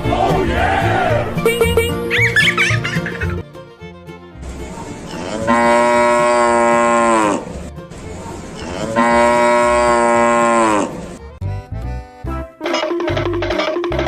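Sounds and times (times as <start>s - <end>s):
cow mooing: 5.1s - 7.5s, 8.6s - 11.0s.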